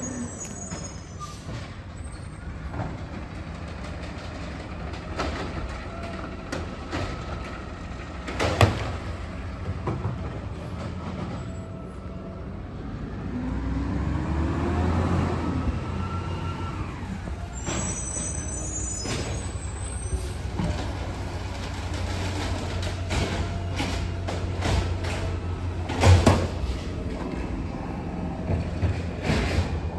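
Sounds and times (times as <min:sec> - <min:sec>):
high squeal with clicks: 0:00.0 - 0:02.4, 0:16.0 - 0:20.5
garbage truck diesel engine revving: 0:12.8 - 0:29.9.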